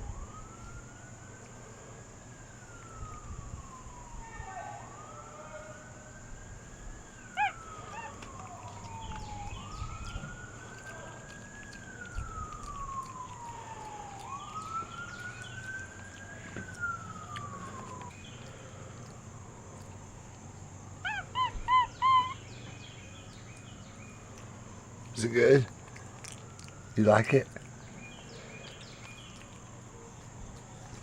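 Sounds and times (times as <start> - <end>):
siren wailing: 0.0 - 1.5, 2.1 - 19.3, 20.9 - 29.2
short high siren chirps: 2.7 - 18.4, 21.0 - 23.2.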